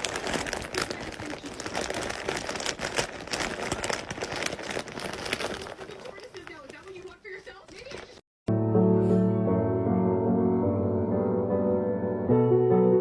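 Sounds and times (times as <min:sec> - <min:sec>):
rustling and crackling: 0:00.0 - 0:08.2.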